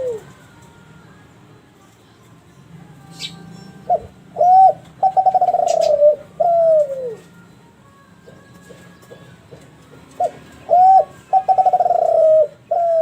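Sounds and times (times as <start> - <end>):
dove cooing: 0.0 - 0.3, 3.2 - 7.3, 10.2 - 13.0.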